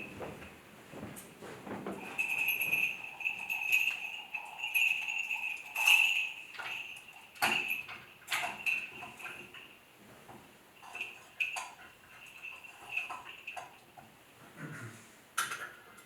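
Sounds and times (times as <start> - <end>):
small metal bells jingling: 2.0 - 9.8, 10.8 - 13.8.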